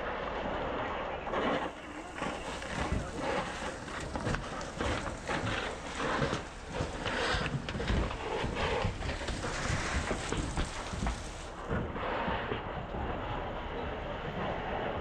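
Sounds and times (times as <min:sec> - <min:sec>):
wind rumbling on microphone: 0:00.0 - 0:15.0
scraping and knocking of debris: 0:01.6 - 0:12.0.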